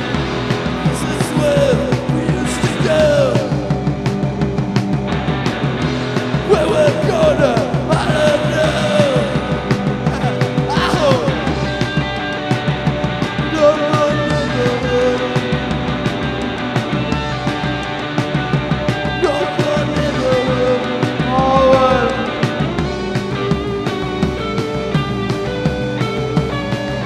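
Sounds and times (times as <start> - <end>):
live rock band playing: 0.0 - 27.0
steady drum beat: 0.0 - 27.0.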